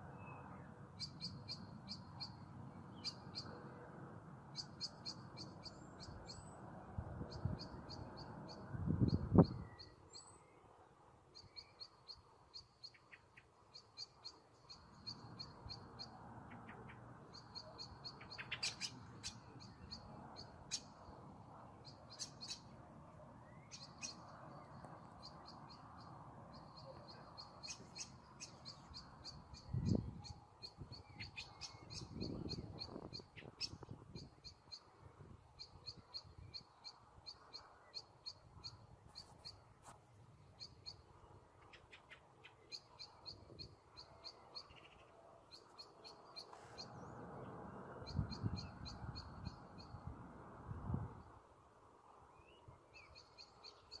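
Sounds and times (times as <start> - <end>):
songbirds trilling: 0.0 - 3.8, 4.4 - 54.0
faint steady low rush: 0.0 - 54.0.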